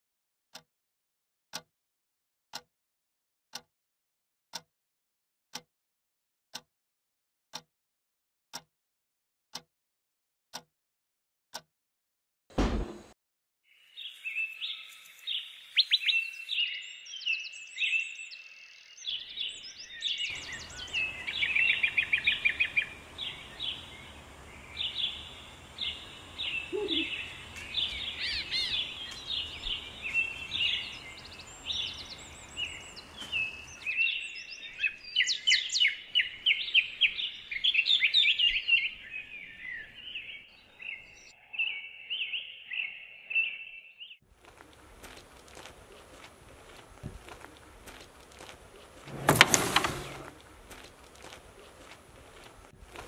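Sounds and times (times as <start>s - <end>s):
small birds chirping and trilling: 13.7s - 53.0s.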